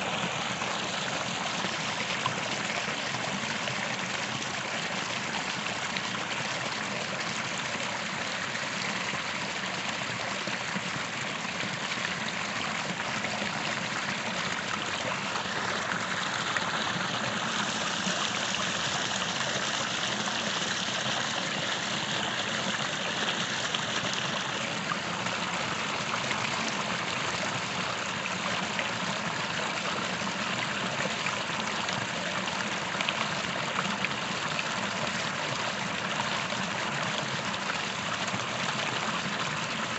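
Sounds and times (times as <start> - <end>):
creek water running over rocks: 0.0 - 39.9.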